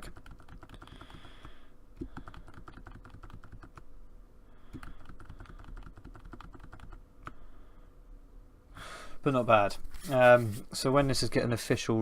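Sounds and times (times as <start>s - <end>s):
keyboard keys clicking: 0.0s - 1.2s, 2.1s - 3.8s, 4.8s - 7.0s
faint steady hum: 0.0s - 12.0s.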